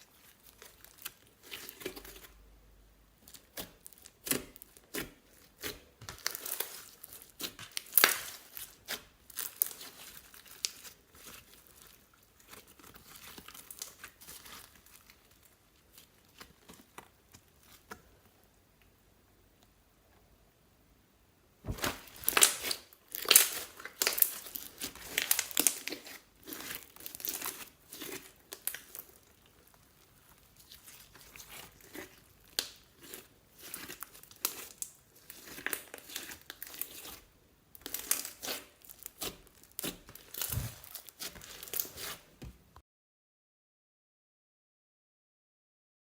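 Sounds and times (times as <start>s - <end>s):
slime squished by hand: 3.3s - 18.0s, 21.6s - 42.2s.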